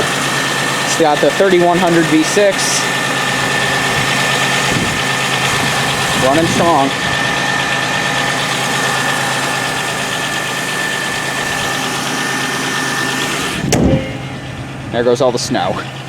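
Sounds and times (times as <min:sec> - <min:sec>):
car engine idling: 0:00.0 - 0:16.0
high whine: 0:00.0 - 0:16.0
car hood slamming shut: 0:13.6 - 0:14.6.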